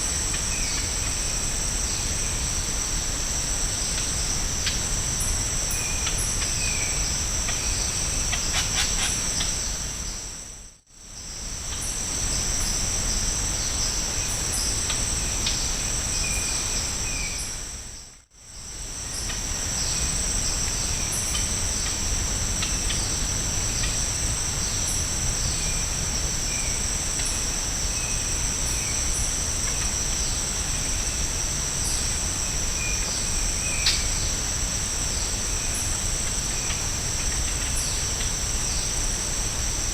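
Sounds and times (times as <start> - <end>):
insects droning: 0.0 - 39.9
faint bird calls: 8.3 - 9.5.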